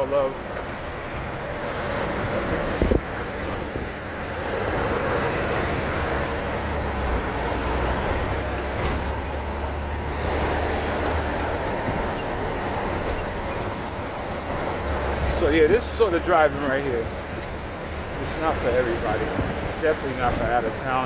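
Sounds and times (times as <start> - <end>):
road noise: 0.0 - 21.0
truck engine drone: 0.0 - 21.0.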